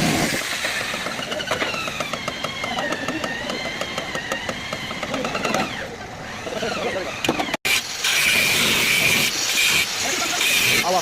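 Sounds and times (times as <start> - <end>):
machine whining and ticking: 0.6 - 8.2.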